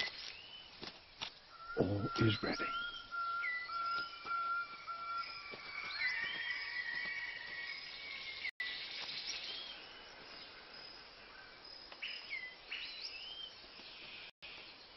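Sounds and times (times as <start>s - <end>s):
whistled bird calls: 1.5s - 9.9s.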